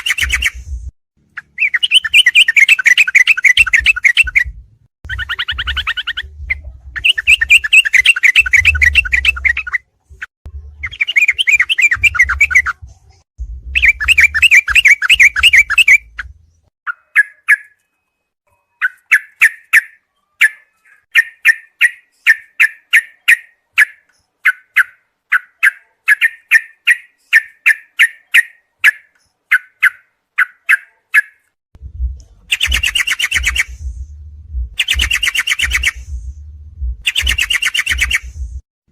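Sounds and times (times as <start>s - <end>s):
bird song chattering: 1.4s - 9.8s, 10.8s - 12.8s, 13.8s - 17.9s, 18.5s - 31.5s, 32.5s - 33.9s, 34.8s - 36.1s, 37.0s - 38.4s
low rumble: 12.8s - 14.1s, 31.8s - 32.8s, 33.6s - 35.2s, 35.9s - 37.1s, 38.2s - 38.6s.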